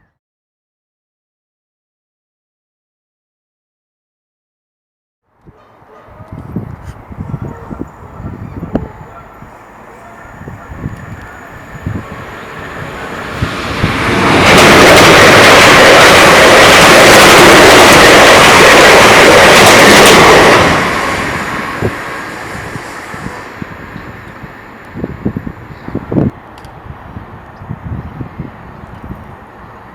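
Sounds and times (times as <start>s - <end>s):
train passing at speed: 5.6s - 29.9s.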